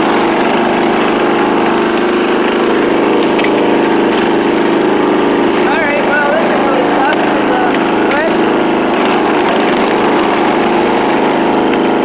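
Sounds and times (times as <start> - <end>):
riding lawn mower engine running: 0.0 - 12.0.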